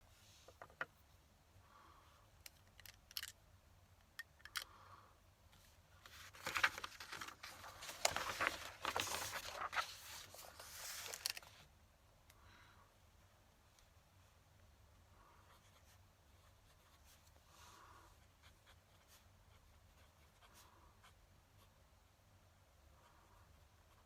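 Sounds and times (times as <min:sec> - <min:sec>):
scratching and rustling on paper: 0:05.6 - 0:11.6.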